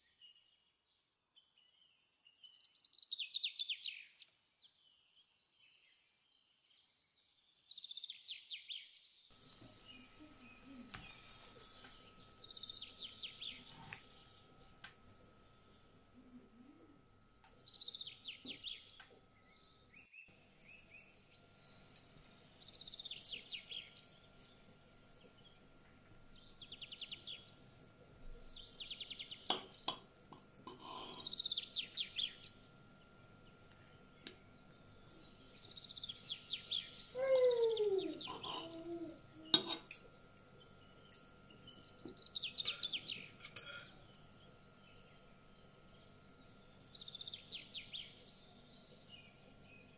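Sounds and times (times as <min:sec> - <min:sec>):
small birds chirping: 0:00.0 - 0:49.9
cutlery clicking on plate: 0:39.5 - 0:40.1, 0:42.6 - 0:44.0.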